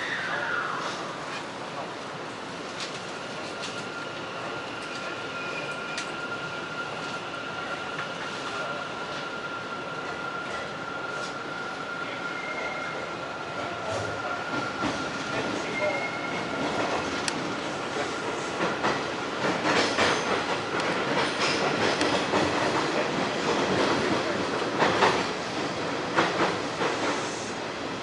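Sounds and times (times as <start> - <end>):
train wheels on rails in tunnel: 0.0 - 28.0
clacks over rail joints: 18.0 - 27.2.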